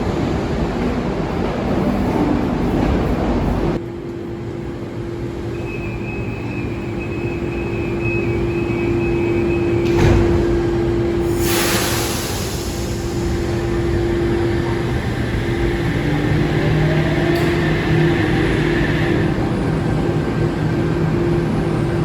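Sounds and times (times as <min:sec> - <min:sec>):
electric train hum and whine: 0:00.0 - 0:22.0
train running noise: 0:00.0 - 0:22.0
burst of hiss: 0:11.3 - 0:13.4.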